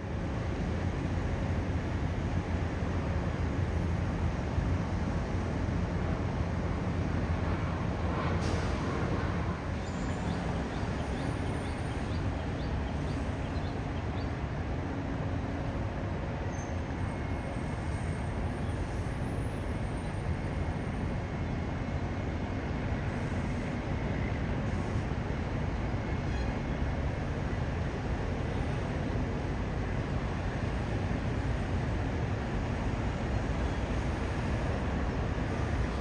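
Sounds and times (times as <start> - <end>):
jet engine rumble: 29.5 - 36.0.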